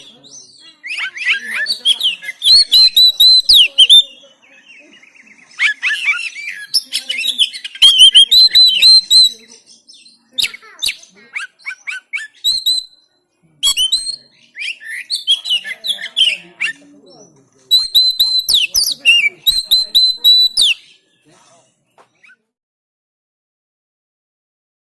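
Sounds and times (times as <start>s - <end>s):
bird singing: 0.0s - 22.6s.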